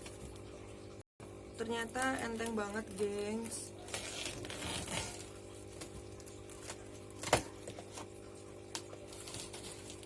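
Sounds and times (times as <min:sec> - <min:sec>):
cardboard package rustling: 0:01.9 - 0:08.2, 0:08.8 - 0:10.0.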